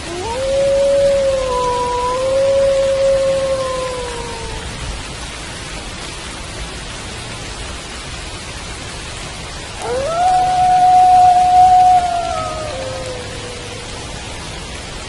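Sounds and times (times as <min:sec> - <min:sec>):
wolf howling: 0:00.0 - 0:04.8, 0:09.8 - 0:14.2
steady rain: 0:00.0 - 0:15.0.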